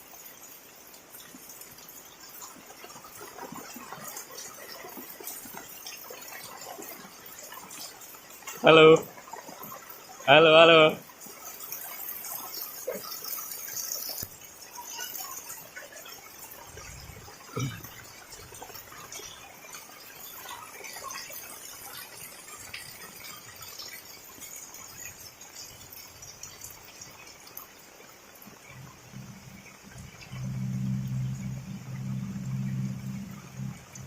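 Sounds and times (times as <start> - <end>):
rain falling: 0.0 - 34.0.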